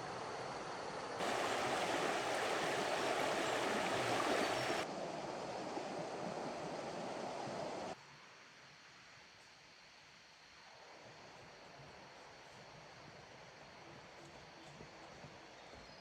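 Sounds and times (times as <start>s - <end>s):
rushing water: 1.2s - 4.9s.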